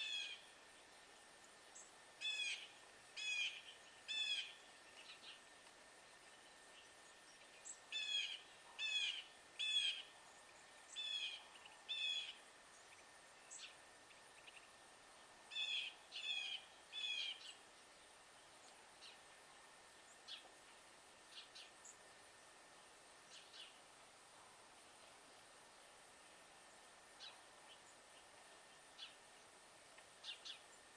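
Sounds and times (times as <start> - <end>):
songbird harsh alarm calls: 0.0 - 0.4, 2.2 - 5.3, 7.6 - 10.1, 10.9 - 12.4, 15.5 - 17.6.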